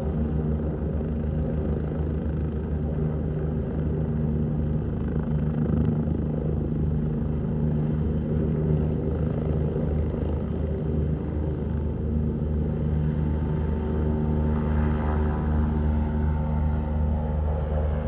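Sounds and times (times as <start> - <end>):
helicopter running: 0.0 - 18.0.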